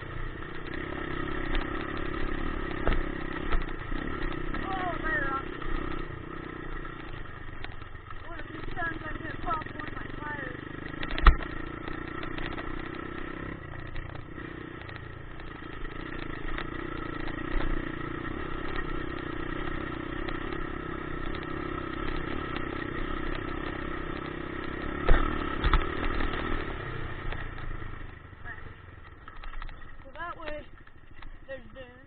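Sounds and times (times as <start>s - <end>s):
dirt bike engine running: 0.0s - 32.0s.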